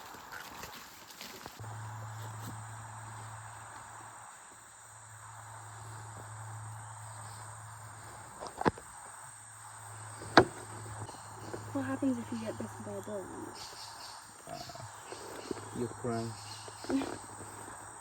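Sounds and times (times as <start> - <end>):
insects chirping chorus: 0.0 - 18.0
low steady hum: 1.6 - 14.1
sharp knocks: 10.2 - 11.7.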